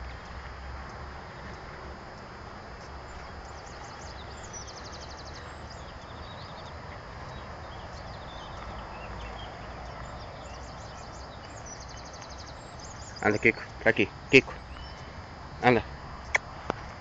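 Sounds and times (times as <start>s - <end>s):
outdoor rustle: 0.0s - 17.0s
small birds chirping: 1.3s - 17.0s.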